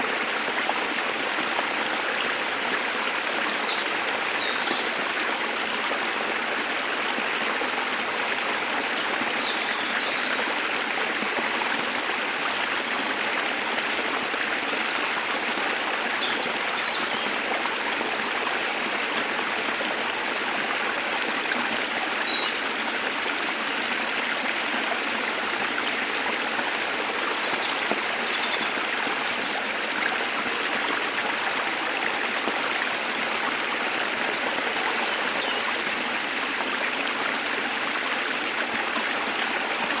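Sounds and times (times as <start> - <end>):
rushing stream: 0.0 - 40.0.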